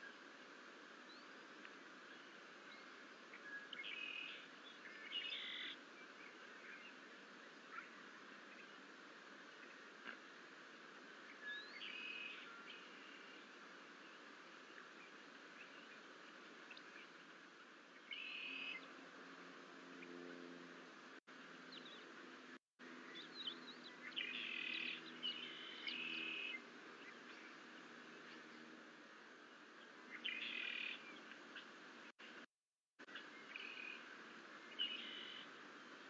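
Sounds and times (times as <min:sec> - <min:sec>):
steady outdoor hiss: 0:00.0 - 0:36.0
faint bird chirps: 0:02.1 - 0:08.8, 0:11.3 - 0:17.2, 0:18.0 - 0:18.9, 0:23.0 - 0:28.6, 0:29.8 - 0:31.8, 0:34.7 - 0:36.0.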